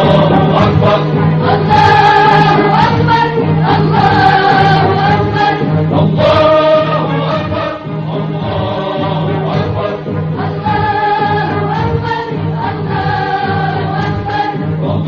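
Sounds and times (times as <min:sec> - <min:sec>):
choir singing: 0:00.0 - 0:15.0
instrumental accompaniment: 0:00.0 - 0:15.0.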